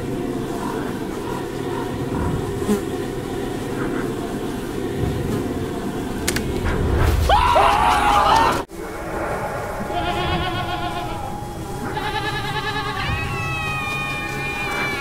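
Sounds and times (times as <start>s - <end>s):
goat-like bleats and screams: 9.9s - 15.0s.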